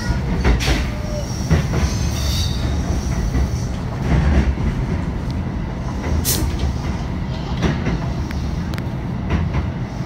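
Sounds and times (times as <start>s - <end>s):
train rumbling: 0.0s - 10.0s
high wheel squeal: 0.6s - 3.8s.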